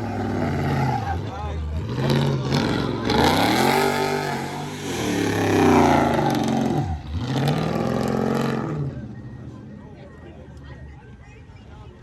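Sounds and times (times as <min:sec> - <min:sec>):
car engine revving: 0:00.0 - 0:09.5.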